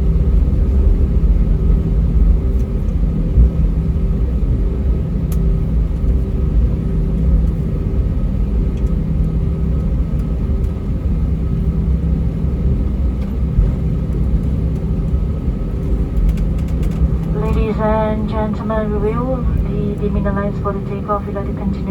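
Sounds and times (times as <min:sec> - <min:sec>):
aircraft cabin engine rumble: 0:00.0 - 0:21.9
faint steady tones: 0:17.1 - 0:21.9.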